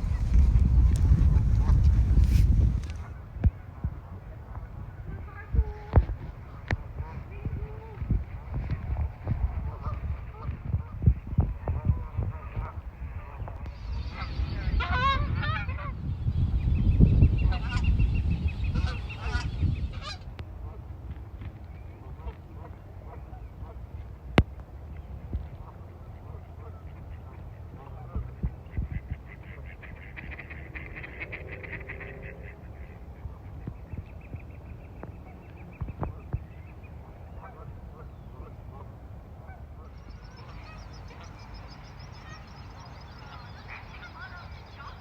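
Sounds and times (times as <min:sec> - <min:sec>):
low rumble: 0:00.0 - 0:04.1
steady low rumble: 0:00.0 - 0:21.1
bird calls: 0:11.8 - 0:20.3, 0:39.5 - 0:45.0
geese honking: 0:11.8 - 0:20.3, 0:37.4 - 0:45.0.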